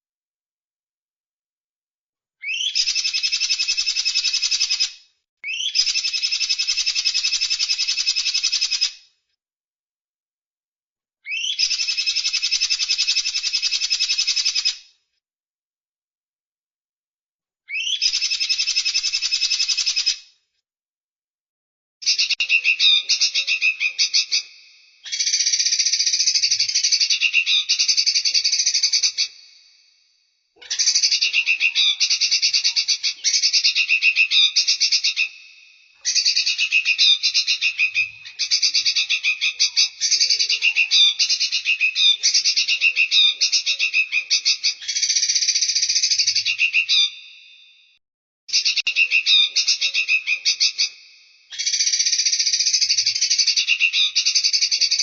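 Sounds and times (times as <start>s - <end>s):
songbird trilling: 2.4s - 4.9s, 5.5s - 6.8s, 11.3s - 14.6s, 17.7s - 20.1s, 22.0s - 29.6s, 30.6s - 47.4s, 48.5s - 55.0s.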